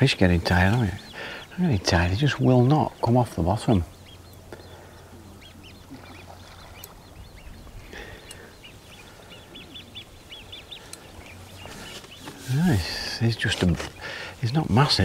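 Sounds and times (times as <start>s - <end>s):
birds calling: 0.0s - 15.0s.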